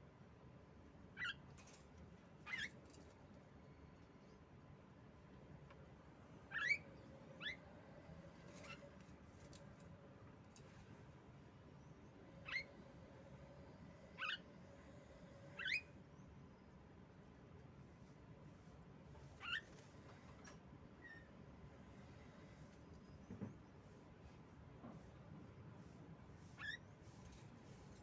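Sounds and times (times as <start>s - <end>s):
faint steady hum: 0.0s - 26.3s
bird squeaky calls: 2.5s - 2.7s, 6.5s - 6.8s, 12.5s - 12.7s, 19.4s - 19.6s, 26.6s - 26.8s.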